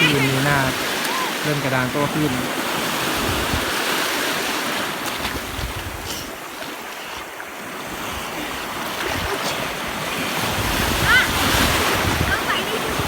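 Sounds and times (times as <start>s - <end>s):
sea surf breaking on beach: 0.0s - 13.0s
wind buffeting microphone: 2.5s - 3.9s, 5.1s - 6.3s, 7.8s - 13.0s.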